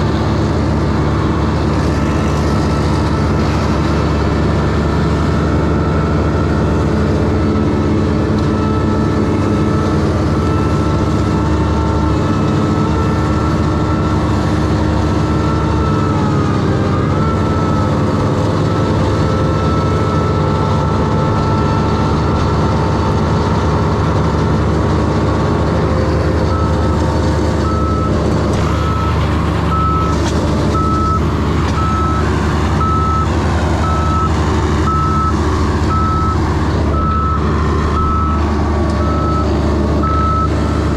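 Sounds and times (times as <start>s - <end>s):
heavy engine running: 0.0s - 40.9s
backup alarm beeping: 27.6s - 38.4s.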